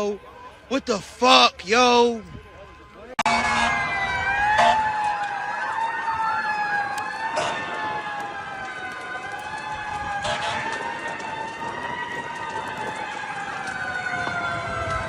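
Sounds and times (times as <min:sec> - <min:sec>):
emergency sirens wailing: 0:00.0 - 0:15.0.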